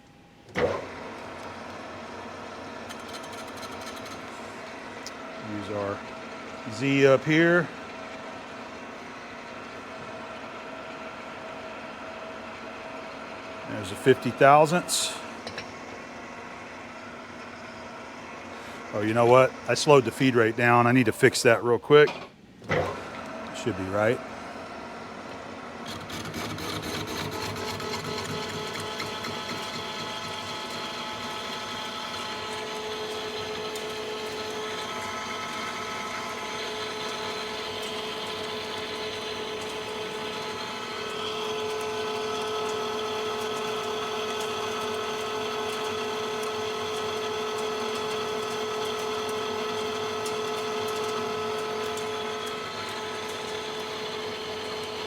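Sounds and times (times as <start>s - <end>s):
lathe gear whine: 0.0s - 22.1s, 22.7s - 55.0s
metal cutting noise: 13.7s - 15.2s, 25.8s - 45.9s.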